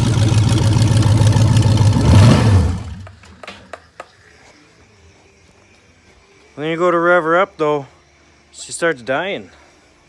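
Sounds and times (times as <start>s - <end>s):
car engine idling and stalling: 0.0s - 3.4s.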